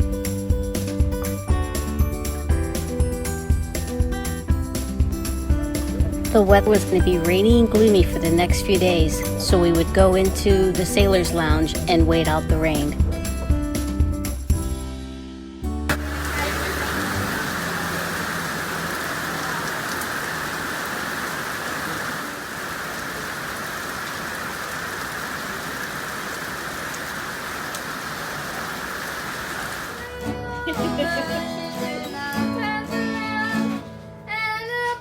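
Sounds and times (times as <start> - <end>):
acoustic guitar: 0.0 - 14.9, 15.7 - 19.4, 30.0 - 35.0
steady rain: 15.9 - 30.2
person singing: 30.0 - 33.8.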